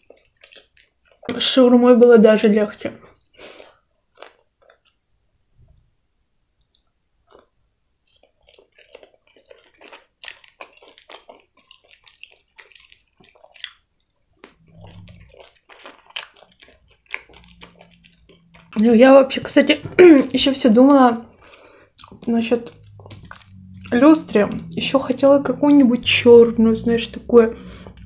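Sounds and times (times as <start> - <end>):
wet chewing sounds: 0.0 - 1.6, 3.1 - 5.0, 6.7 - 28.0
low closed-mouth hum: 16.5 - 28.0.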